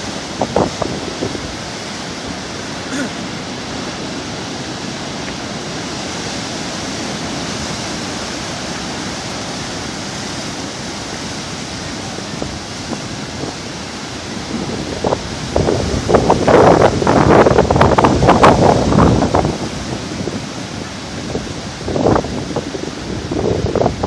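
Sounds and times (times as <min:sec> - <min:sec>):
sea surf washing on shore: 0:00.0 - 0:24.0.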